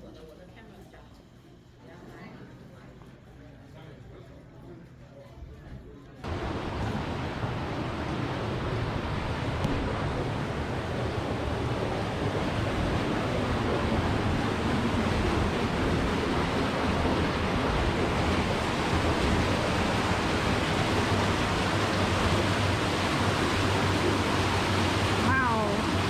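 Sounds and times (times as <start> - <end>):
low boat engine drone: 6.2 - 26.0
wind and water rushing: 6.2 - 26.0.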